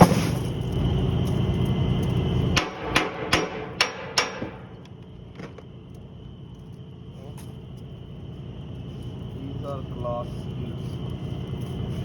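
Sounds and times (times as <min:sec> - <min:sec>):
steady low rumble: 0:00.3 - 0:03.9.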